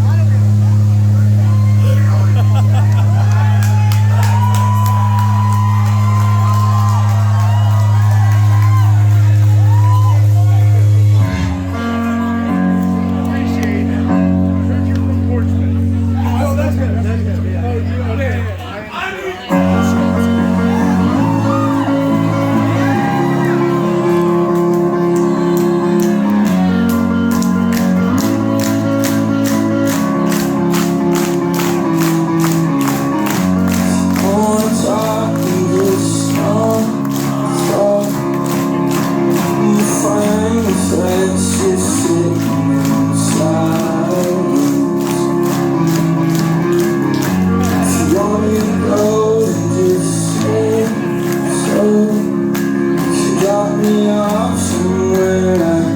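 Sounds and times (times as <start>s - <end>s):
guitar chords: 0.0s - 55.9s
person singing: 19.5s - 55.9s.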